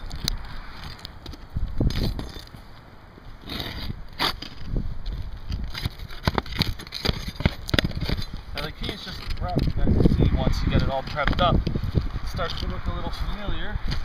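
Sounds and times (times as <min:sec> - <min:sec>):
roof shingles being pried loose: 0:05.5 - 0:09.5.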